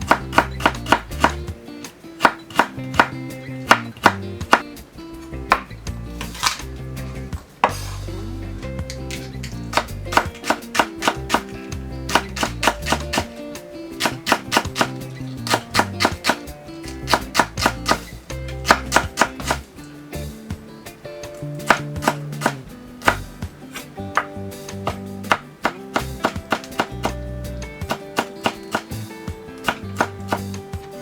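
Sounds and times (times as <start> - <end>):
knife chopping on cutting board: 0.0 - 1.4, 2.2 - 4.6, 9.7 - 11.5, 12.1 - 13.4, 14.0 - 19.7, 21.6 - 27.2, 27.8 - 29.0, 29.6 - 30.6
background music: 0.0 - 31.0.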